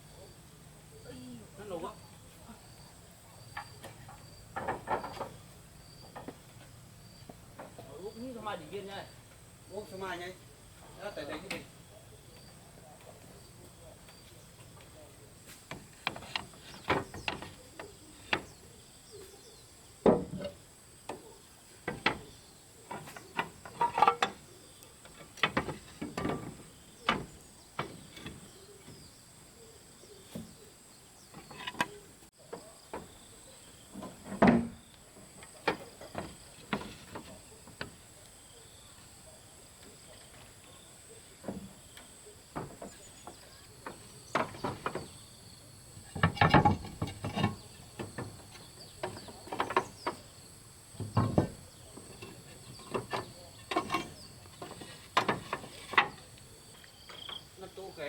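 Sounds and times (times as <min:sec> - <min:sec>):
knocks and thuds: 0:04.6 - 0:05.4, 0:25.1 - 0:29.0, 0:33.9 - 0:34.8, 0:42.6 - 0:45.3, 0:46.0 - 0:56.2.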